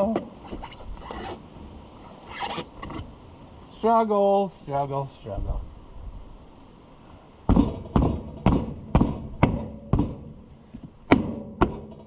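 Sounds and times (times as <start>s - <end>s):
tool striking tire: 7.5s - 10.3s, 11.1s - 12.0s.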